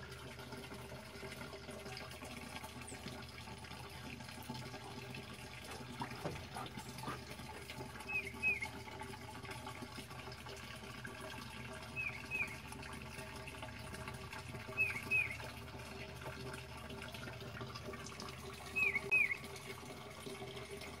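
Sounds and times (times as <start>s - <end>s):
running pond water: 0.0s - 21.0s
bird chirping: 8.1s - 8.7s, 12.0s - 12.6s, 14.8s - 15.4s, 18.8s - 19.4s.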